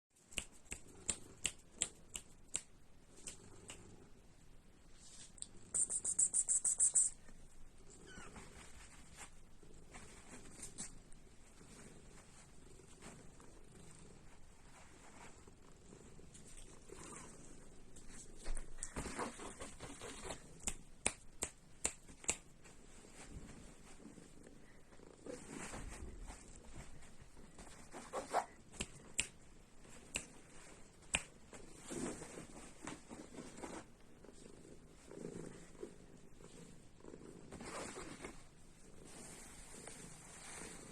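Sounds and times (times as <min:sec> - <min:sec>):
kitten purring: 0:09.6 - 0:22.0, 0:29.9 - 0:40.9.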